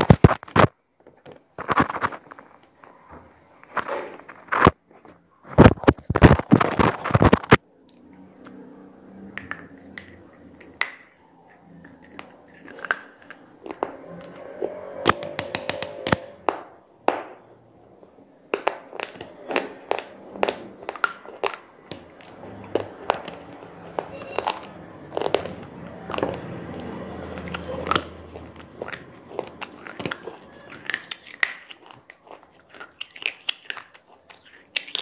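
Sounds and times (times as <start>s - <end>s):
chewing with sharp crunches: 11.4s - 16.0s, 18.8s - 35.0s.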